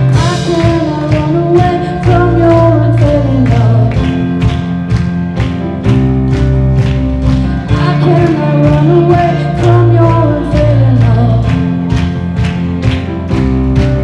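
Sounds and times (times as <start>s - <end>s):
person singing: 0.0s - 4.1s, 7.6s - 11.8s
worship band playing: 0.0s - 14.0s.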